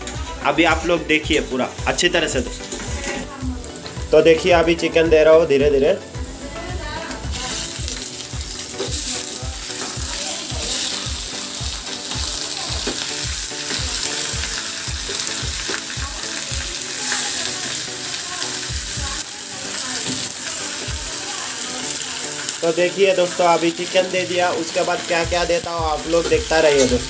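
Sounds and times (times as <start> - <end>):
hot oil sizzling: 0.0 - 27.0
spatula stirring in a pan: 7.4 - 25.3.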